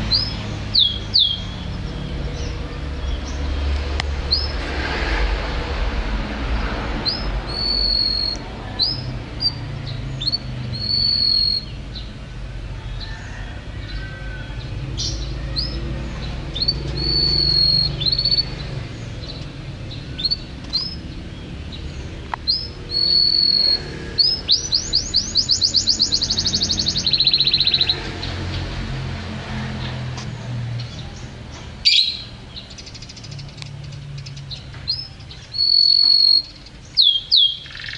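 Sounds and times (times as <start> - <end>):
canary singing: 0.0 - 4.6, 7.0 - 29.1, 30.8 - 37.9
steady low rumble: 0.0 - 10.9.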